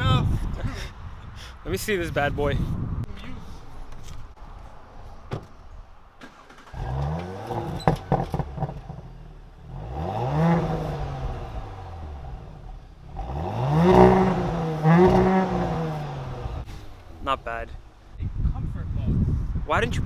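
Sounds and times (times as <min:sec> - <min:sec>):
car engine revving: 0:06.2 - 0:17.4.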